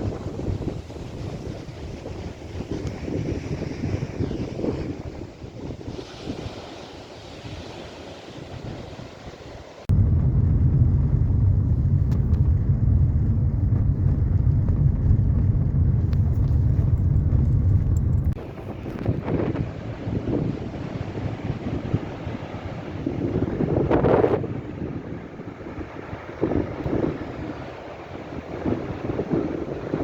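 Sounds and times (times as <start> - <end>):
surf on shore: 0.0 - 10.6, 18.4 - 30.0
wind buffeting microphone: 0.0 - 30.0.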